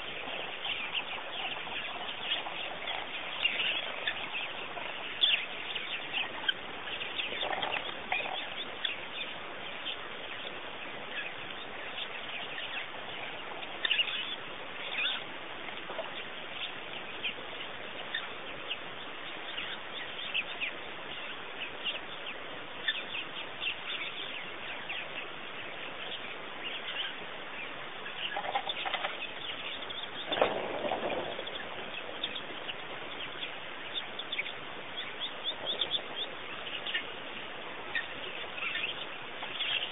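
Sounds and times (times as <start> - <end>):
lower bird calls: 0.0 - 39.9
small birds chirping and twittering: 0.0 - 39.9.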